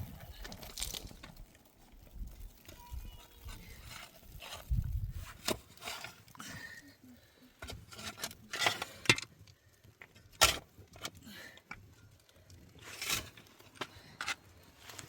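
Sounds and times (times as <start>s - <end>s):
knocks and scrapes of handling: 3.2s - 6.8s, 7.6s - 9.3s, 12.6s - 15.0s.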